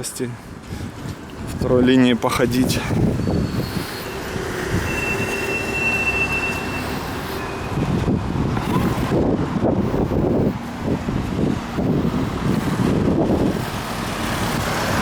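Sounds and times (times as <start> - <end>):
wind buffeting microphone: 0.0 - 15.0
high steady squeal: 3.0 - 8.1.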